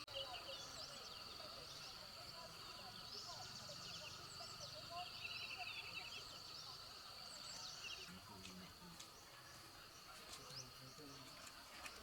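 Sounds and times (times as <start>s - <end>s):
bird chirps: 0.0s - 8.2s.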